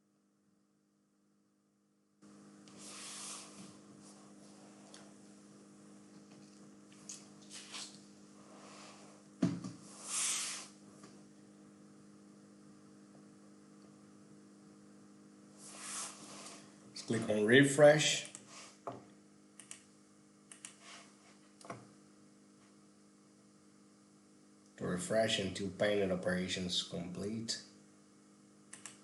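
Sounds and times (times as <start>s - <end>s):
electrical mains hum: 0.0s - 29.0s
short hissy noises: 2.7s - 3.6s, 7.5s - 9.1s, 9.9s - 10.8s, 15.6s - 16.7s.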